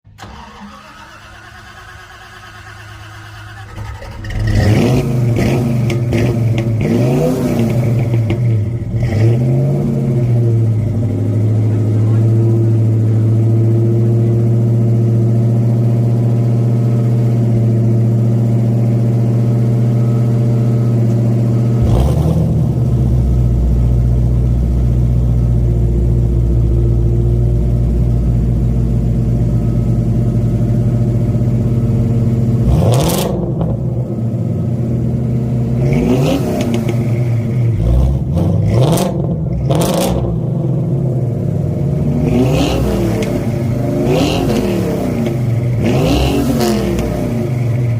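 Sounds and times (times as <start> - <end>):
car engines idling: 0.1 - 47.9
engines revving in sharp blips: 3.5 - 13.8, 19.6 - 24.0, 32.4 - 34.2, 35.5 - 41.2, 41.8 - 47.9.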